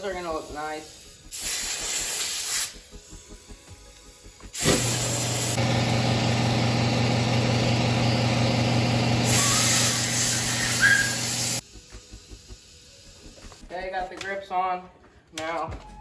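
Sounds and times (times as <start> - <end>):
hiss of air: 0.6 - 3.4, 9.2 - 13.6
air compressor motor hum: 4.4 - 12.4.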